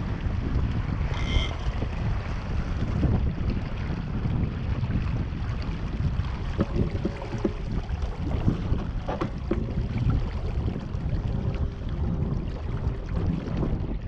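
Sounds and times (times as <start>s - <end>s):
water lapping against hull: 0.0s - 14.0s
wind buffeting microphone: 0.0s - 14.0s
small knocks: 6.6s - 7.8s, 8.8s - 9.8s.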